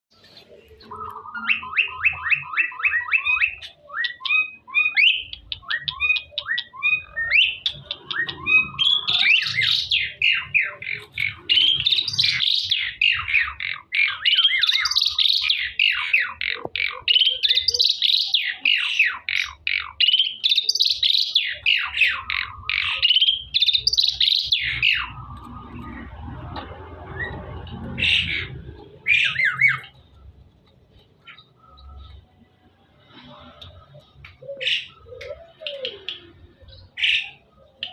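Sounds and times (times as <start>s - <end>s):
myna chirping and warbling: 0.2s - 32.4s.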